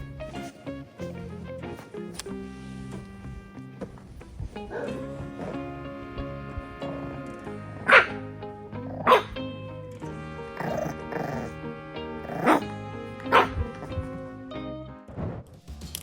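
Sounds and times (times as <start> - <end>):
background music: 0.0 - 16.0
dog barking: 4.6 - 5.8, 7.8 - 8.2, 8.9 - 9.4, 10.6 - 11.6, 12.2 - 14.3.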